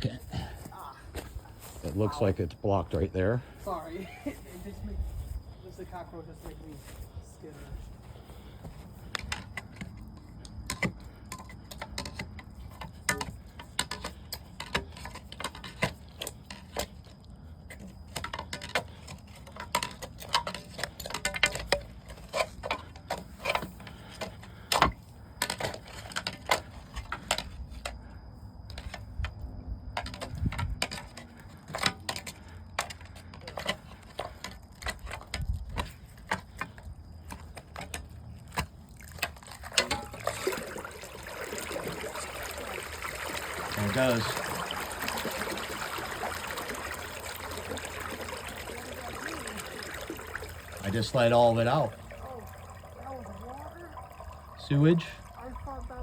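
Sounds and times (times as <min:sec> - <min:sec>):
clinks and knocks: 0:17.7 - 0:28.0, 0:28.7 - 0:40.4.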